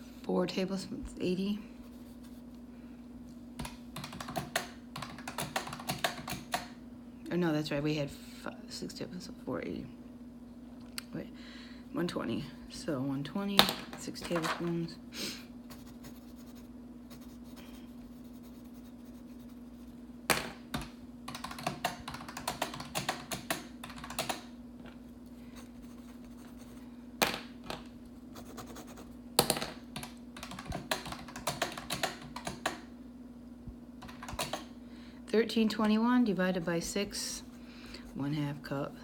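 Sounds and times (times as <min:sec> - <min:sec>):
steady low hum: 0:00.0 - 0:39.0
calculator keys clicking: 0:03.6 - 0:06.7, 0:20.8 - 0:24.5, 0:29.4 - 0:32.8, 0:34.0 - 0:34.7.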